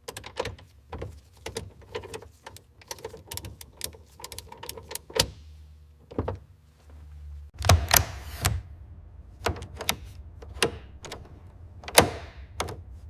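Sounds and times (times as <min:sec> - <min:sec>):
light clicks and knocks: 0:00.0 - 0:05.4.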